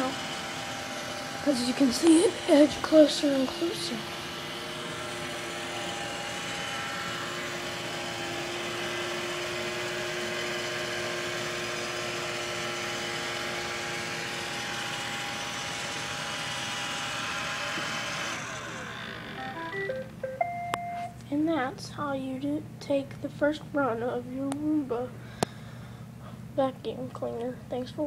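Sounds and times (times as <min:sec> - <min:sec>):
robot vacuum motor whirring: 0:00.0 - 0:20.0.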